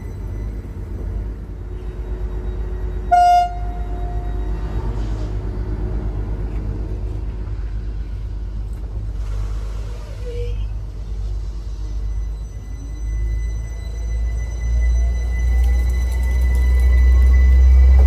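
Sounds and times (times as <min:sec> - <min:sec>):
train engine rumble: 0:00.0 - 0:18.0
train horn toot: 0:03.0 - 0:05.4.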